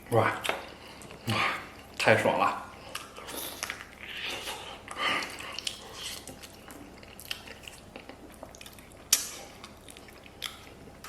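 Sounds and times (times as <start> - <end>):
chewing and biting food: 2.8 - 11.0.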